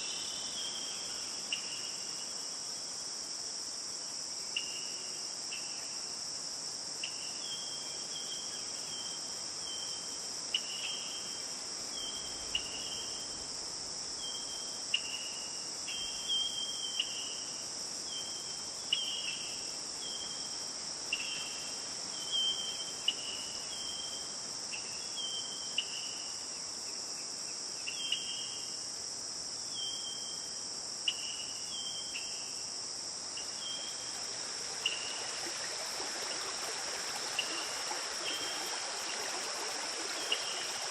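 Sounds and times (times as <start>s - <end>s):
crickets chorus: 0.0s - 40.9s.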